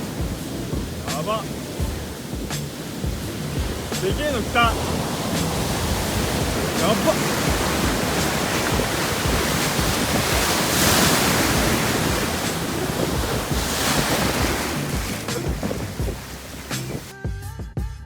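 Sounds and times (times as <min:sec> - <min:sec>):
surf breaking on shore: 0:00.0 - 0:17.1
wind buffeting microphone: 0:00.0 - 0:17.1.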